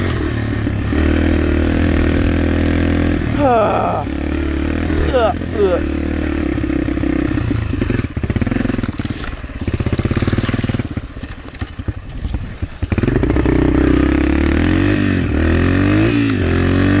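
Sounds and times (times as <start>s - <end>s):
pit bike engine running: 0.0s - 17.0s.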